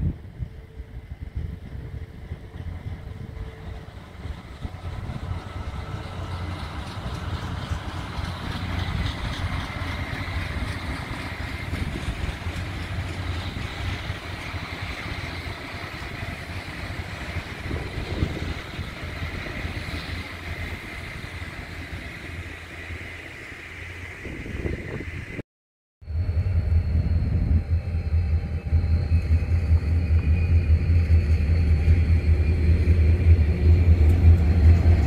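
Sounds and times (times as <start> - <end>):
distant train rumble: 0.0 - 25.4, 26.0 - 35.0
train wheels rolling on rails: 0.2 - 25.4, 26.4 - 35.0.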